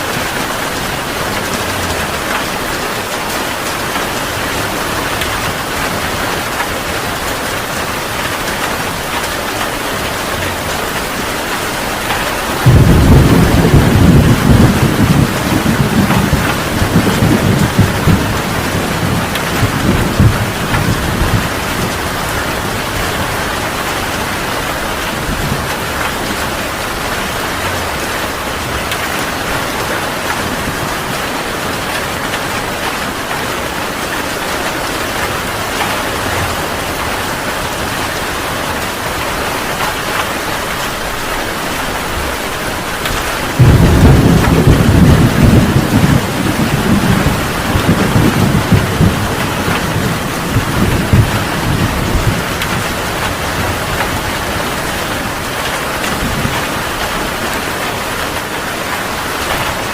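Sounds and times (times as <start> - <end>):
heavy rain pouring: 0.0 - 59.9
thunder rumbling: 0.1 - 57.8
loud crack of thunder: 12.5 - 22.1, 43.1 - 54.5.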